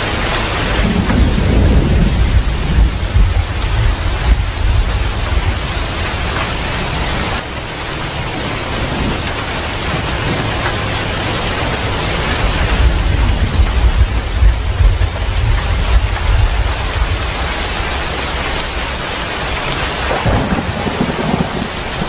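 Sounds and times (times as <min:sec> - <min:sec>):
low thunder rumble: 0:00.0 - 0:07.4, 0:08.4 - 0:22.0
heavy rain: 0:00.0 - 0:22.0.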